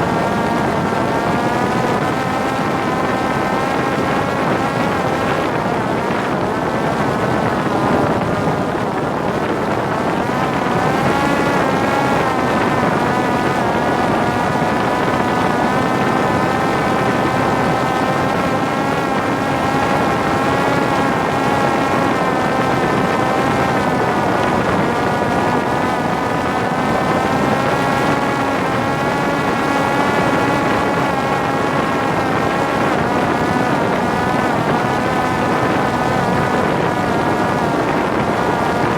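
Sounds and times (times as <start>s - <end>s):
drone motor whine: 0.0s - 38.9s
wind rushing across microphone: 0.0s - 38.9s.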